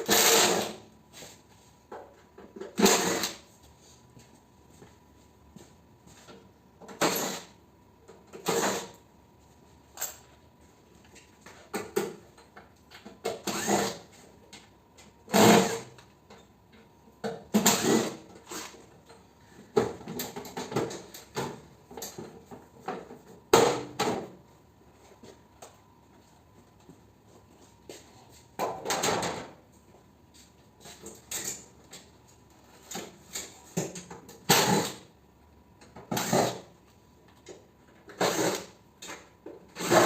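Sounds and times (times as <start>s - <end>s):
short bursts of tool noise: 0.0s - 0.8s, 2.8s - 3.4s, 13.4s - 14.0s.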